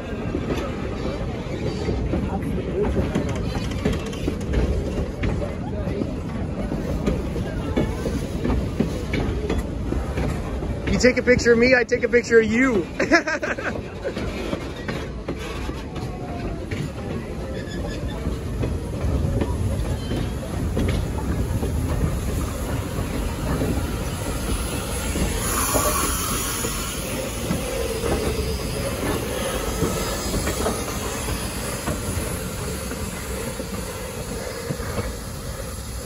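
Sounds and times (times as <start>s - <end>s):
train wheels rumbling on rails: 0.0s - 36.0s
wheel squeal: 17.4s - 18.3s, 19.8s - 20.5s.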